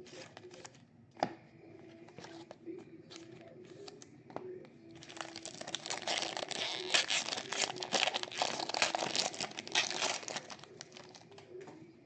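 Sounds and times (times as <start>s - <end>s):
wrapper crinkling and tearing: 5.0s - 11.4s.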